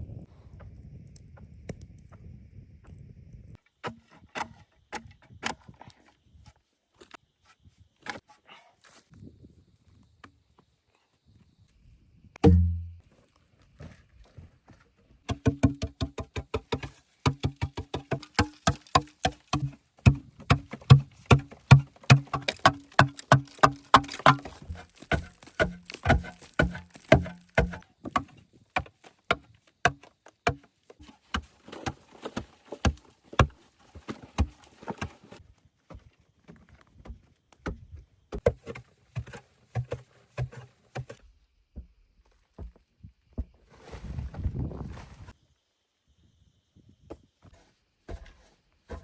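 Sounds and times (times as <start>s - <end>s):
low steady hum: 12.4s - 13.0s.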